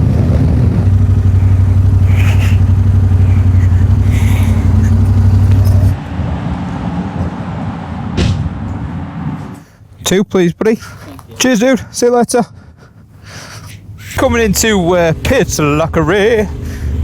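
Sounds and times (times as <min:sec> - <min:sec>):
motorcycle engine running: 0:00.0 - 0:06.0
road noise: 0:00.0 - 0:11.8, 0:13.0 - 0:17.0.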